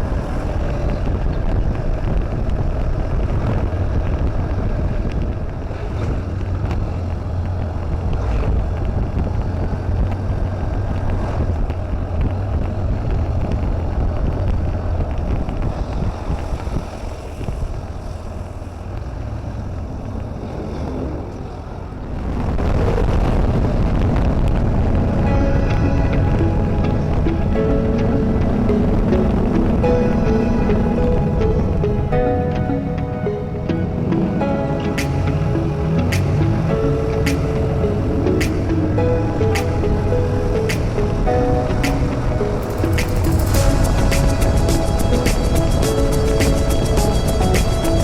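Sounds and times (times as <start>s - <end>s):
vehicle engine rumble: 0.0s - 48.0s
wind noise on microphone: 0.0s - 48.0s.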